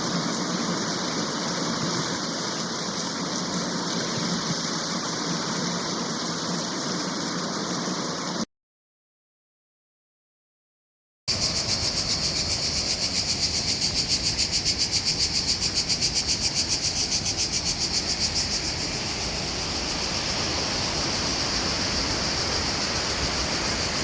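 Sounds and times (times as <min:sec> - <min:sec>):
insects buzzing: 0:11.3 - 0:24.0
falling water rushing: 0:17.3 - 0:24.0.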